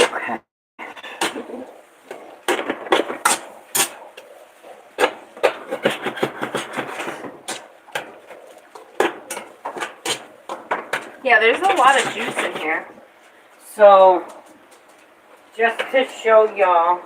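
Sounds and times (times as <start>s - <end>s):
kitchen utensils clattering on cookware: 9.0s - 12.8s.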